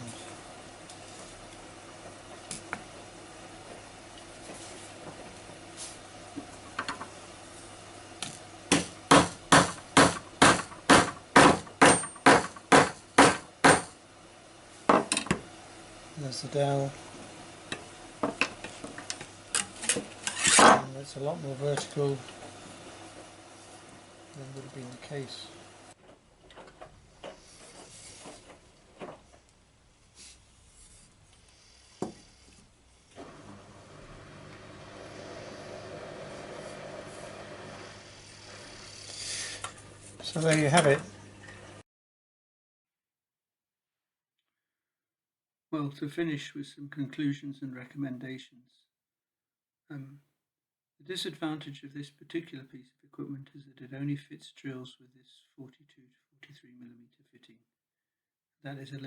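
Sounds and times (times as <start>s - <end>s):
hammer striking dowel: 8.7s - 13.9s
sharp wooden knock: 8.7s - 13.9s
light knocks and rubbing of wood: 31.9s - 32.6s.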